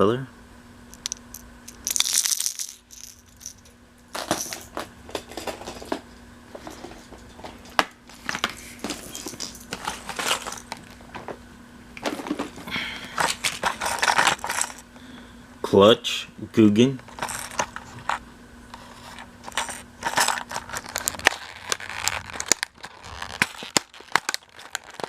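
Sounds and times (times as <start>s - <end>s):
lures rattling: 0.9s - 4.7s, 13.2s - 14.8s, 17.1s - 18.2s, 19.4s - 25.0s
plastic packaging crackling: 8.2s - 11.0s, 19.4s - 25.0s.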